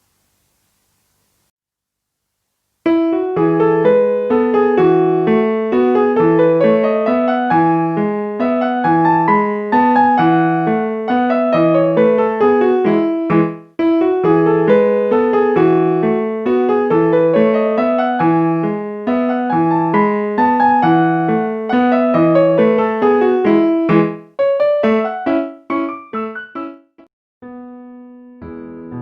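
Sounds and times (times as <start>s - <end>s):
piano melody: 2.9s - 29.0s.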